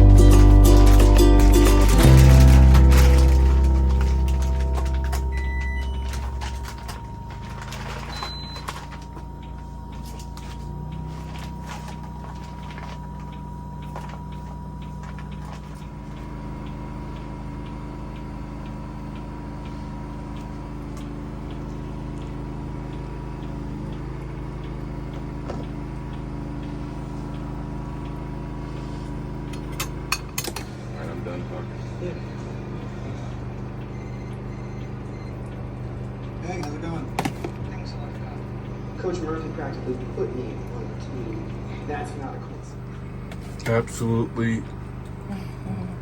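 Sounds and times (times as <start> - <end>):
low mechanical hum: 0.0 - 46.0
faint regular ticking: 2.8 - 31.2.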